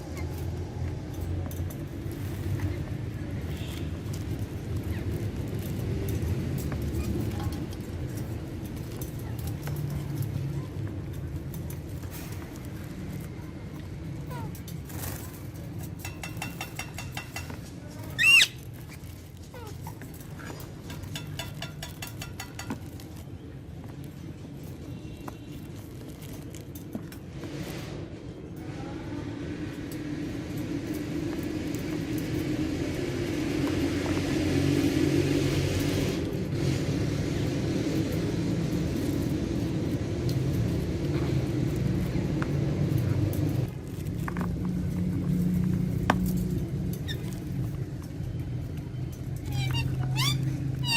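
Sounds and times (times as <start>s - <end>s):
parakeet screeching: 18.2s - 18.6s, 49.5s - 50.9s.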